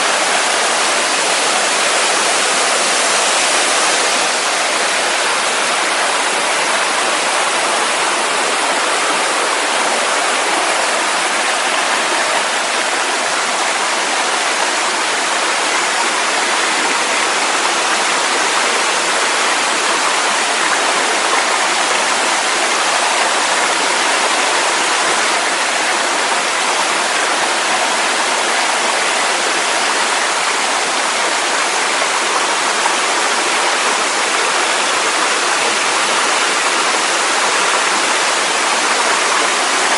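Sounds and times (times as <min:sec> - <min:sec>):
waterfall rushing over rocks: 0:00.0 - 0:39.9.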